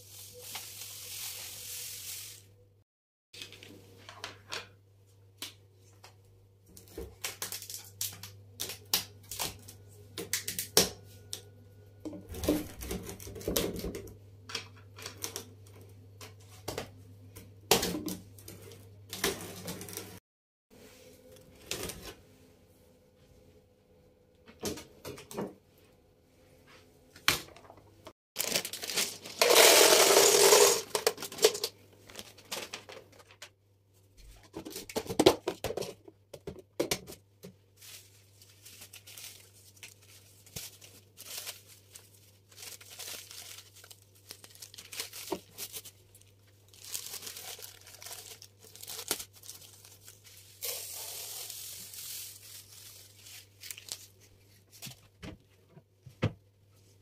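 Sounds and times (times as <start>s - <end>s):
food packaging tearing and crinkling: 28.4s - 33.4s, 37.8s - 54.3s.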